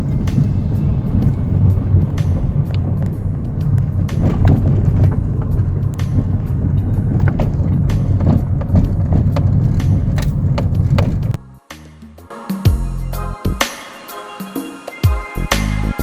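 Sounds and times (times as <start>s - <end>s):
knocks and rattles: 0.0s - 11.4s
vehicle rumbling on rough road: 0.0s - 11.4s.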